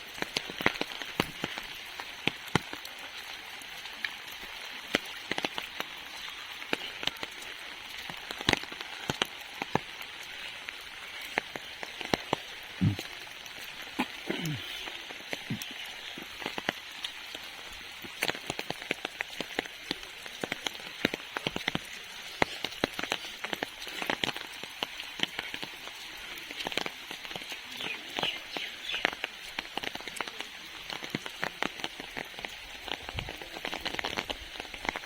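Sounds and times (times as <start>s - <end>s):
rain hiss: 0.0s - 35.0s
raindrops tapping an umbrella: 0.0s - 35.0s.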